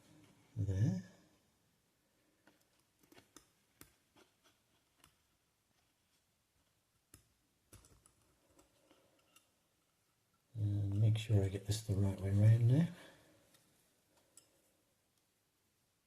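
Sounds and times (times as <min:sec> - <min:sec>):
wire clicking and tapping on net: 0:07.1 - 0:09.5.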